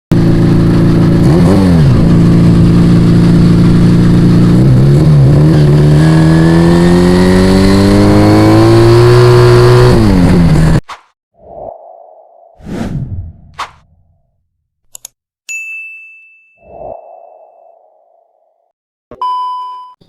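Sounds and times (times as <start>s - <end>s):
motorcycle engine revving: 0.1s - 10.8s.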